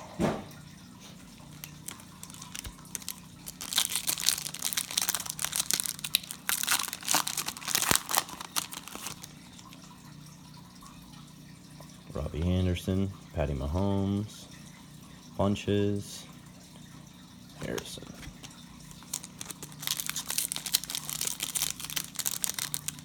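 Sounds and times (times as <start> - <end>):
plastic wrapper crinkling and tearing: 1.4 - 9.9, 17.7 - 23.0.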